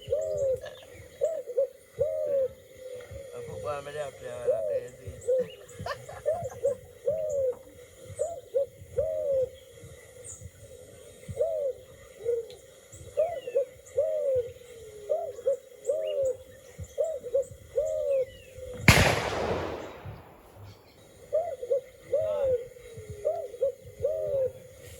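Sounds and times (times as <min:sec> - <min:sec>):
birds hooting coos: 0:00.0 - 0:24.9
shotgun blast: 0:18.9 - 0:21.1.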